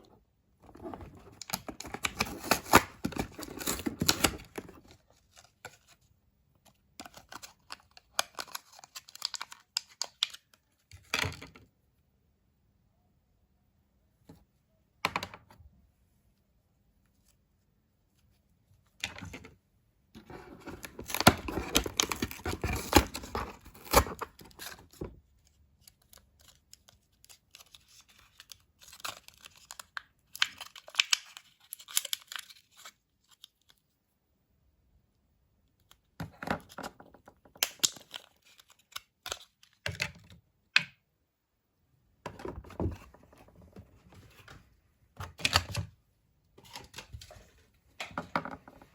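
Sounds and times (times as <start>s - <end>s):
packaging tearing and crinkling: 1.3s - 4.5s.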